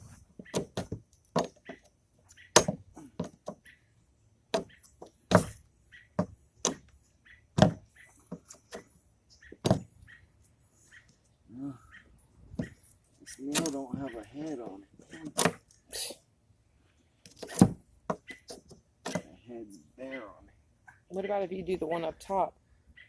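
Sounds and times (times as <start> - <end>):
sharp knocks on wood: 2.6 - 3.6, 7.6 - 8.8, 9.5 - 9.9.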